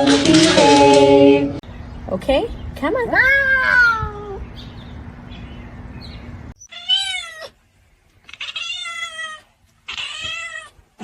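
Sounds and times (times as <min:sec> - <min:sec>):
cat meowing: 0:06.6 - 0:07.6, 0:08.3 - 0:10.8.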